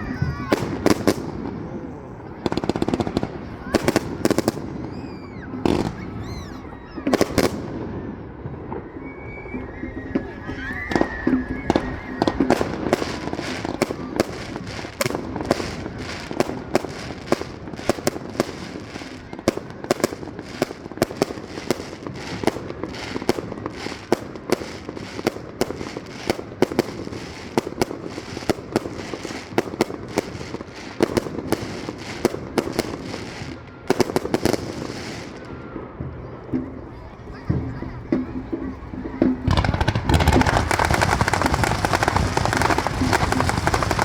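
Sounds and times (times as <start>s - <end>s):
fireworks bangs: 0.0s - 44.0s
fireworks crackling: 0.0s - 44.0s.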